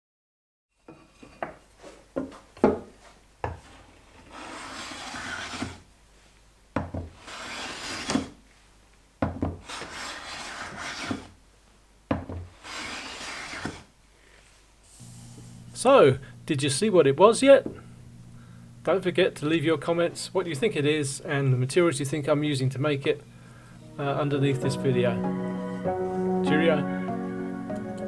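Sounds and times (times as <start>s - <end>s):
tool rasping across wood: 4.2s - 5.8s, 7.2s - 8.4s, 9.6s - 11.3s, 12.5s - 13.9s
hand tool knocking wood: 6.8s - 7.1s, 9.2s - 9.6s, 12.1s - 12.5s.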